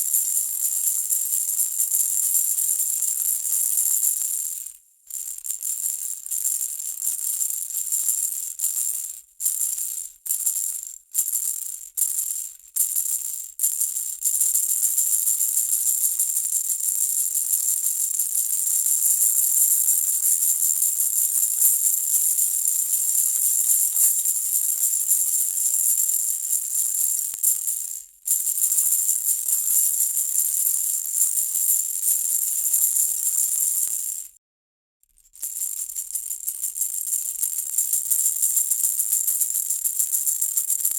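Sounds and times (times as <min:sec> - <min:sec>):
baby rattle shaking: 0:14.6 - 0:34.4, 0:35.2 - 0:40.9.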